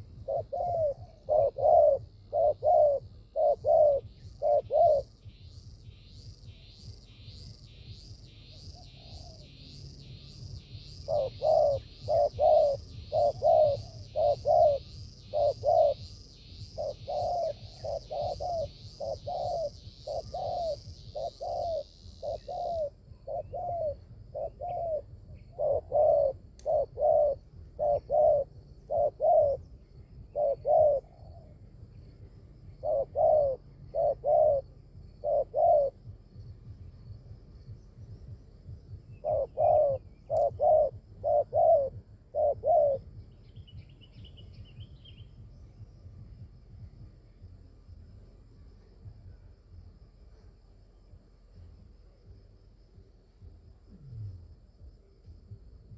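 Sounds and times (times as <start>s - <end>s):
dove cooing: 0.0s - 5.3s, 8.5s - 32.0s, 32.6s - 36.3s, 39.0s - 43.8s.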